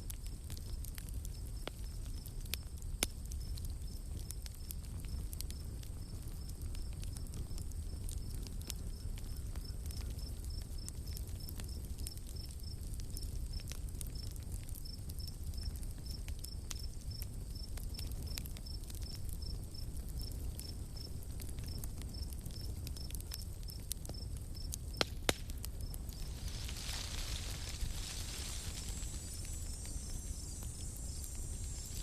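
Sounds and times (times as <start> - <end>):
campfire crackles and pops: 0.0 - 32.0
rustle: 0.0 - 32.0
cricket chirping: 25.7 - 32.0.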